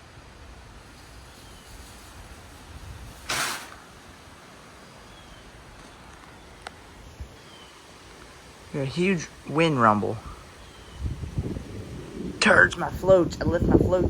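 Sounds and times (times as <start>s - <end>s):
storm wind blowing: 0.0s - 4.3s, 8.0s - 14.0s.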